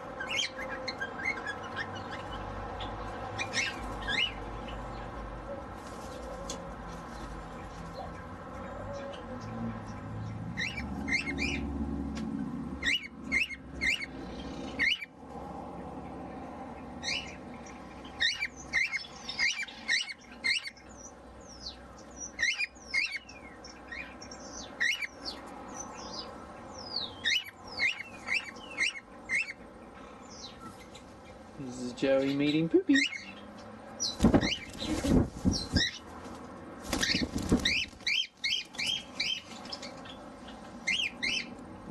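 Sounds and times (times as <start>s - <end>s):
cockatiels chirping: 0.2s - 4.8s, 10.6s - 11.6s, 12.8s - 15.1s, 18.1s - 25.4s, 26.0s - 29.6s, 32.1s - 33.4s, 34.0s - 36.0s, 37.0s - 41.6s.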